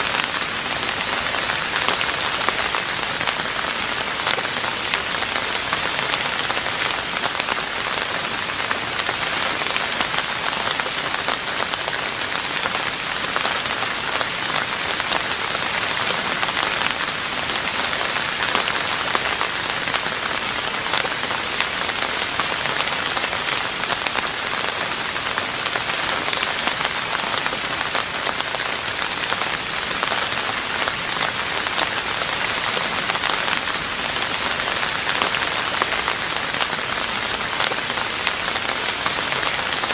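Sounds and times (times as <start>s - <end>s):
rain falling on a roof: 0.0s - 39.9s.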